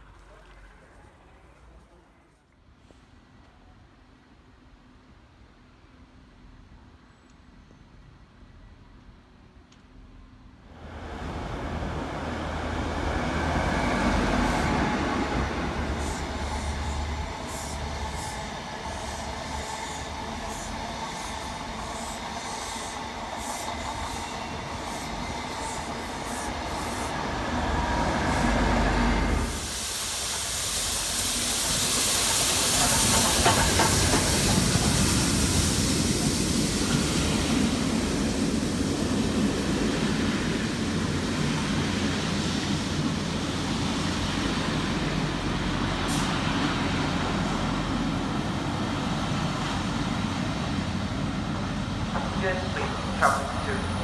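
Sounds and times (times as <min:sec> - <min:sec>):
train wheels clicking over rail joints: 0:29.5 - 0:36.6.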